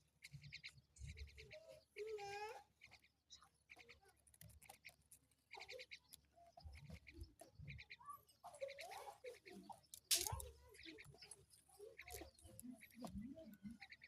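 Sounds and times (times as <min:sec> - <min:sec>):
high clicking bird notes: 0:09.9 - 0:10.6.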